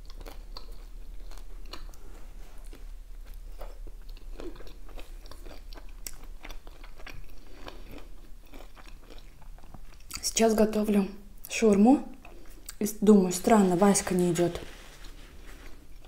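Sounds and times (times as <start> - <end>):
person chewing food: 0.0 - 10.2, 12.1 - 12.8.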